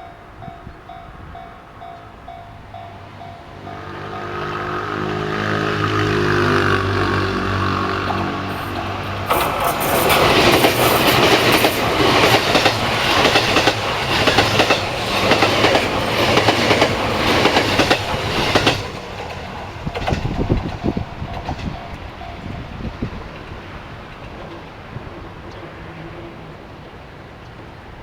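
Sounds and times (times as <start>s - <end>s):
train passing: 0.0s - 28.0s
wheels clacking over rail joints: 1.8s - 26.4s.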